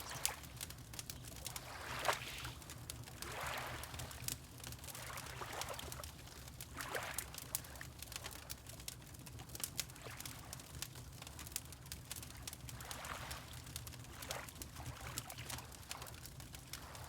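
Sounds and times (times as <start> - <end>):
wood fire crackling: 0.0 - 1.8, 7.3 - 9.9, 10.6 - 12.7
water lapping: 1.4 - 7.3.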